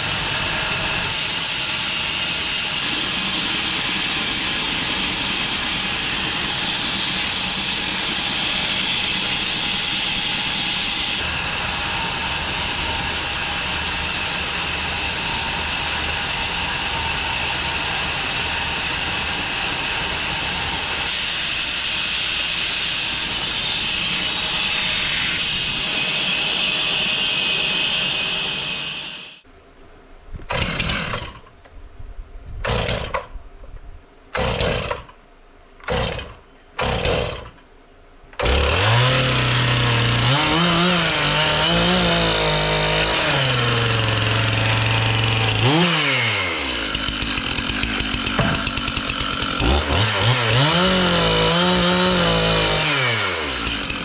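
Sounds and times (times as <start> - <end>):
bandsaw mill sawing log: 0.0 - 29.4, 30.5 - 31.5, 32.6 - 33.2, 34.4 - 35.2, 35.8 - 37.6, 38.4 - 54.0
engine revving: 38.4 - 47.5, 49.5 - 54.0.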